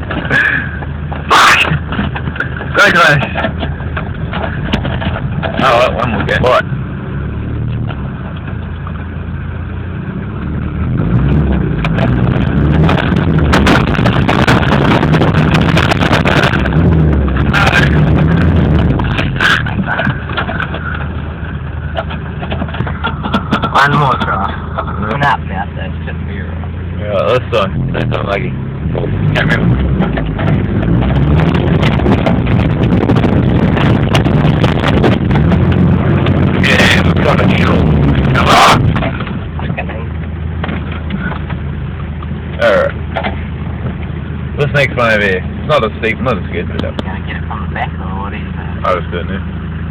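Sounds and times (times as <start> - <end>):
vehicle engine running: 0.0 - 49.9
engine revving hard: 10.2 - 19.8, 27.1 - 39.1
wind buffeting microphone: 10.8 - 25.3, 28.9 - 39.6.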